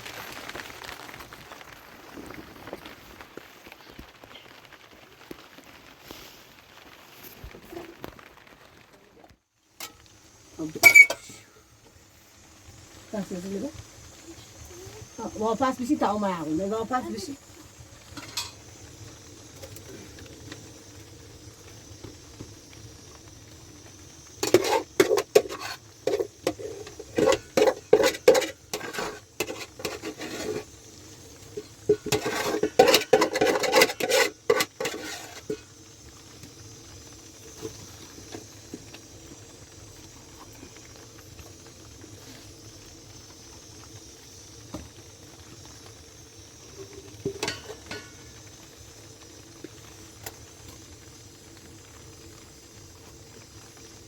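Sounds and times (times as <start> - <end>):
steady faint hiss: 0.0 - 54.0
hard objects clattering: 24.4 - 30.7, 31.5 - 35.6.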